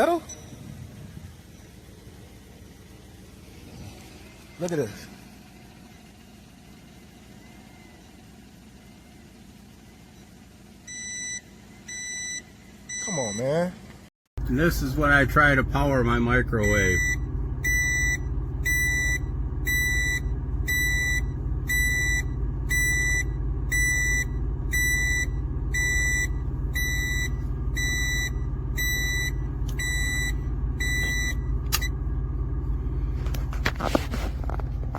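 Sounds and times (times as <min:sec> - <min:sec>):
high-pitched alarm beeps: 0:00.0 - 0:00.7, 0:10.9 - 0:13.5, 0:16.6 - 0:32.0.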